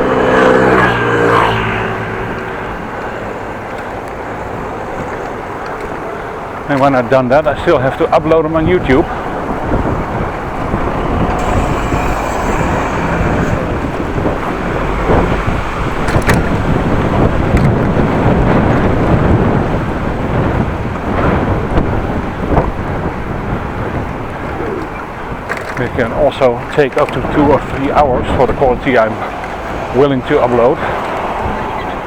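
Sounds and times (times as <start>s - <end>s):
road noise: 0.0s - 32.0s
wind rumbling on microphone: 0.0s - 32.0s.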